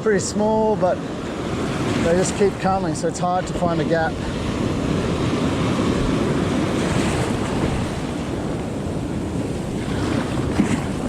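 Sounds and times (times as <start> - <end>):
small waves breaking: 0.3 - 11.0
wind noise on microphone: 3.5 - 11.0.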